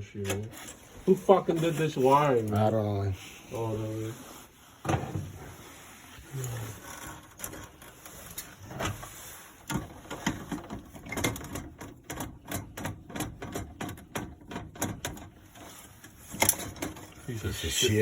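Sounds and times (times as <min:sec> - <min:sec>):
tools clicking and knocking: 0:09.7 - 0:17.2.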